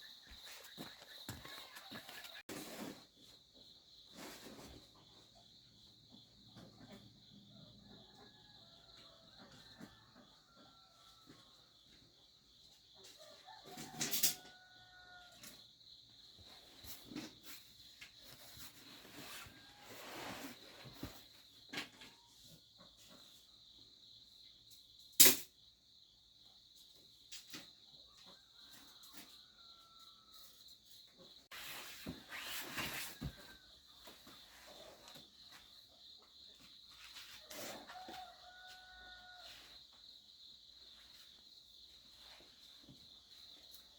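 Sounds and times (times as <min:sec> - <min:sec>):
rustles: 0:16.5 - 0:21.4, 0:31.5 - 0:35.7.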